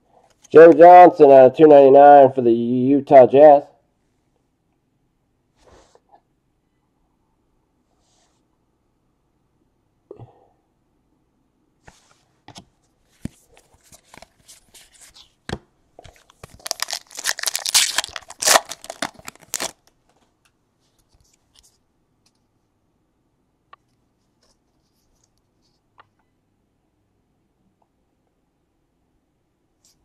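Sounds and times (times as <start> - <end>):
foil wrapper tearing and crinkling: 16.4 - 19.8.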